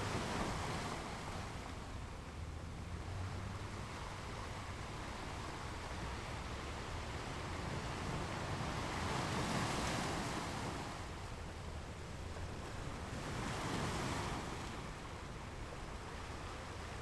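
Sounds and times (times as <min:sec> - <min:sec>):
sea waves washing onto beach: 0:03.2 - 0:15.5.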